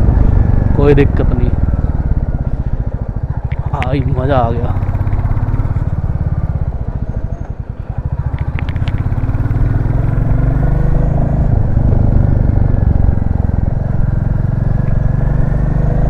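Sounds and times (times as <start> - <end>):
motorcycle engine thumping: 0.0 - 14.2.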